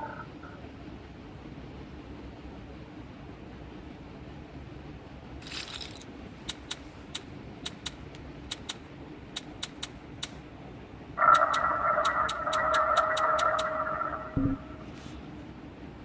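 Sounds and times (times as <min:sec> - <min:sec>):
low steady hum: 0:00.0 - 0:16.0
sharp irregular clicks: 0:05.4 - 0:10.4, 0:11.2 - 0:13.9.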